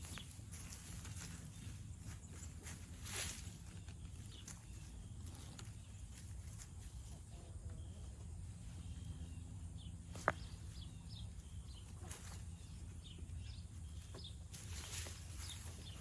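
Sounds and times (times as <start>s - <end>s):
low steady rumble: 0.0s - 16.0s
small birds chirping: 0.0s - 16.0s
rustling scraping noise: 14.1s - 16.0s.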